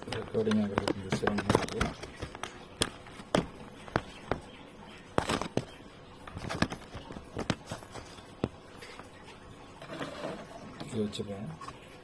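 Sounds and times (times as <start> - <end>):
sharp handling clicks and taps: 0.0 - 4.5.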